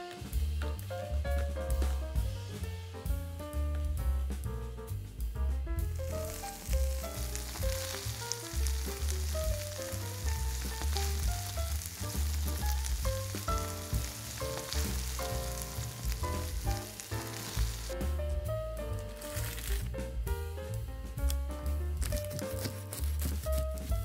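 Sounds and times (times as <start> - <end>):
background music: 0.0 - 24.0
food sizzling in a frying pan: 5.9 - 18.1, 19.2 - 19.9, 22.0 - 24.0.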